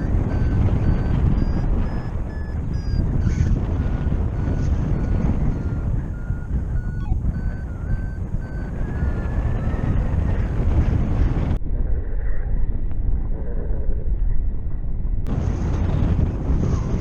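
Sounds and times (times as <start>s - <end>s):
variometer beeping: 0.0s - 10.5s
wind on microphone: 0.0s - 17.0s.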